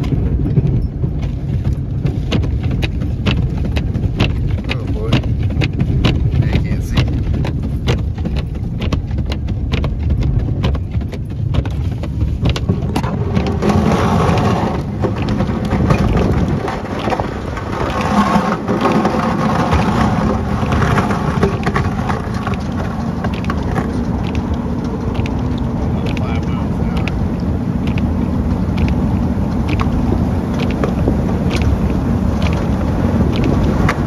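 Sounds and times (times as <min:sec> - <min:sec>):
engine and road rumble: 0:00.0 - 0:34.0
snow rushing against truck: 0:00.0 - 0:34.0
sharp clicks: 0:22.4 - 0:28.1.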